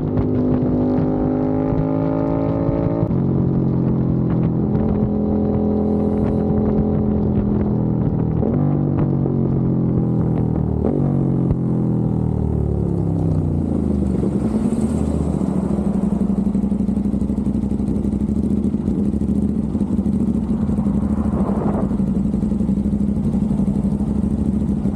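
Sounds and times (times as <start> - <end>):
motorcycle engine idling: 3.3 - 24.9.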